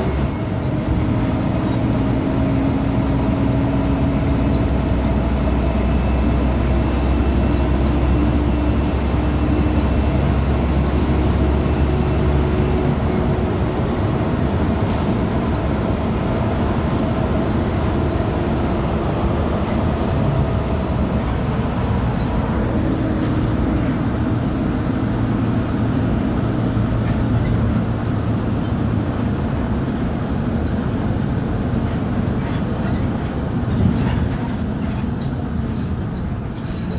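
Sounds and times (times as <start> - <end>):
bus diesel engine running: 0.0 - 36.9.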